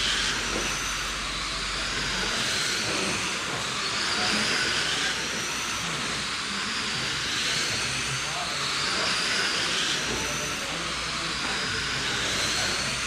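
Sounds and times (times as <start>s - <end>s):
electric rc cars racing: 0.0s - 13.0s
motor whine: 0.0s - 13.0s.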